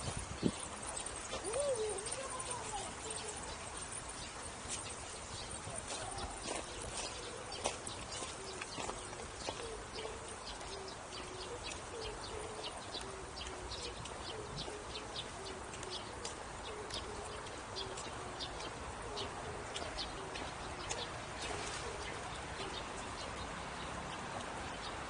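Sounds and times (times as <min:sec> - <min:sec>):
footsteps on a hard path: 0:00.0 - 0:22.8
bird cooing: 0:01.0 - 0:03.6, 0:05.9 - 0:07.6, 0:08.2 - 0:22.9.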